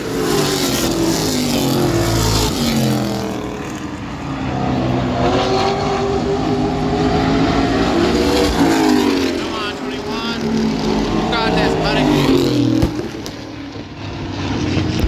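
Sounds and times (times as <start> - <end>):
race truck engines passing by: 0.0 - 15.0.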